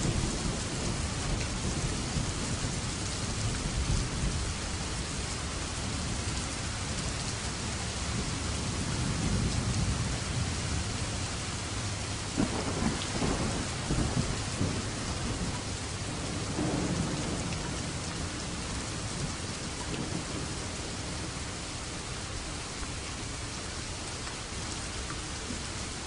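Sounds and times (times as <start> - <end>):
heavy rainfall: 0.0 - 26.0
rolling thunder: 11.8 - 21.4.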